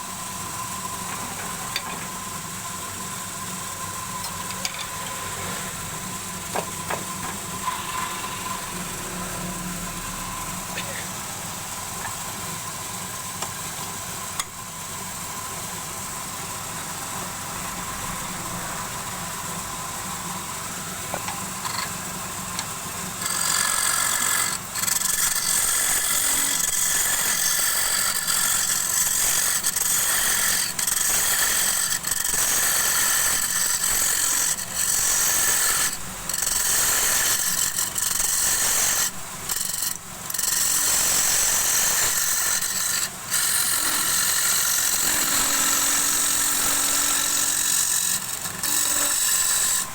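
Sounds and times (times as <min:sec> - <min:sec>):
wood lathe humming: 0:00.0 - 0:49.9
turning tool scraping wood: 0:22.6 - 0:49.9.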